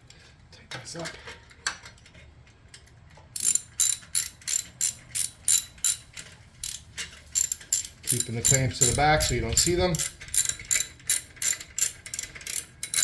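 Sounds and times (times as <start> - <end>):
ratchet wrench clicking: 3.4 - 13.0.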